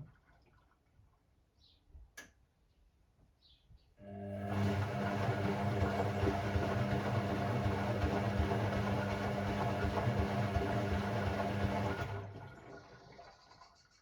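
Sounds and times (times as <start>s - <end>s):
washing machine motor humming: 4.0s - 13.3s.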